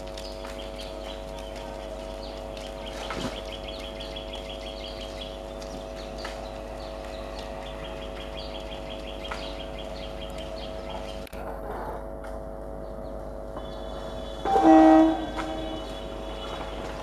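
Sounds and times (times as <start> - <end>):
low hum: 0.0 - 17.0
bird chirping: 0.2 - 11.2.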